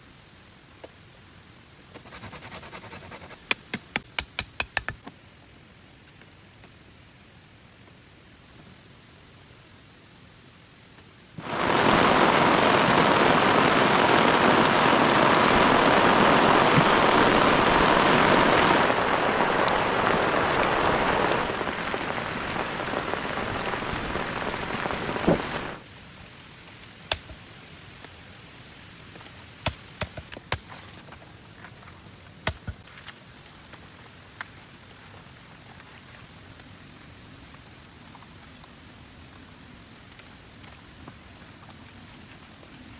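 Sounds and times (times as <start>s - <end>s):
heavy rain pouring: 11.4s - 25.8s.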